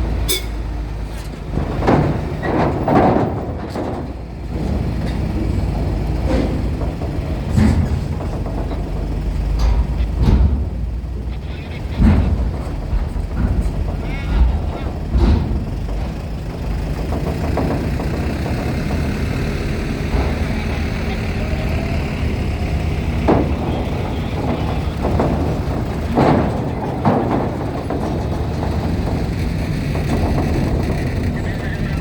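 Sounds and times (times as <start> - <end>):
heavy vehicle engines running: 0.0 - 32.0
sharp knocks: 11.9 - 32.0.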